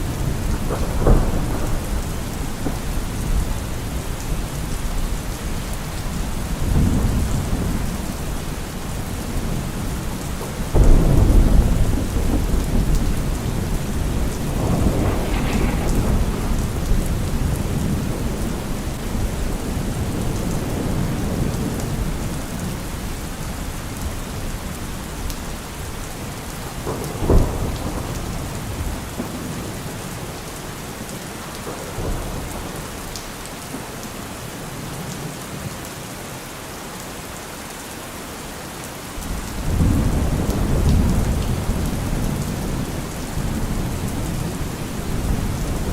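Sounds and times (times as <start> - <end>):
thunder rolling: 0.0 - 4.9, 6.1 - 22.7, 26.2 - 33.1
heavy rain on a car roof: 0.0 - 45.9
sharp thunder clap: 10.6 - 21.5, 26.7 - 30.0.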